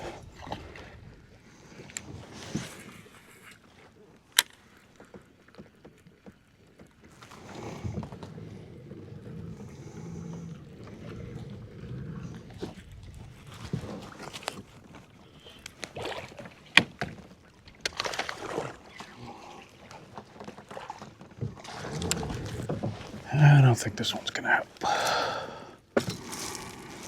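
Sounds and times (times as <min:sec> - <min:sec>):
low rumble of water and wind: 0:00.0 - 0:27.0.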